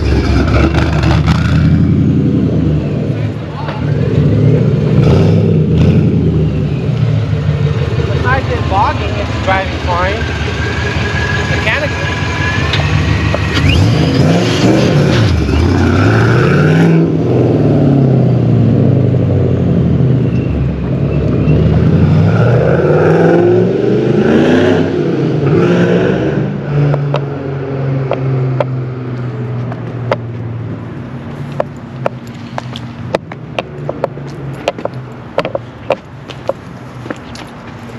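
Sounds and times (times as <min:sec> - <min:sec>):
car engine revving: 0:00.0 - 0:29.4.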